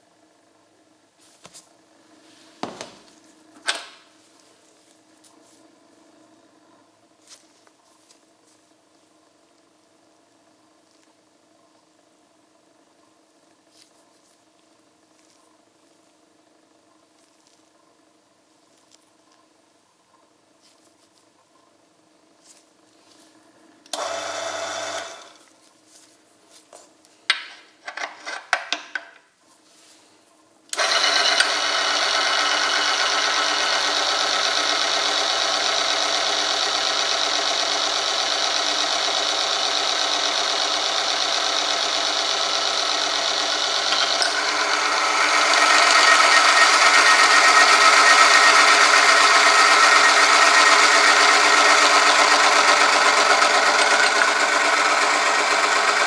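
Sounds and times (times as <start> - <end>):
test machine whirring: 23.8 - 25.4, 30.7 - 56.0.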